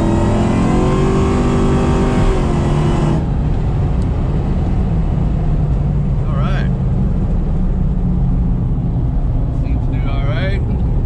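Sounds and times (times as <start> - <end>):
car engine revving hard: 0.0 - 3.4
low steady engine drone: 0.0 - 11.0.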